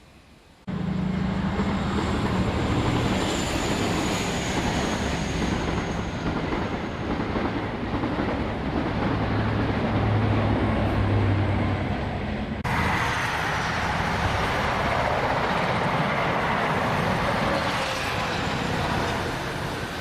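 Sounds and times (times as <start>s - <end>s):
train rumbling on rails: 0.6s - 20.0s
steam hissing: 12.7s - 20.0s.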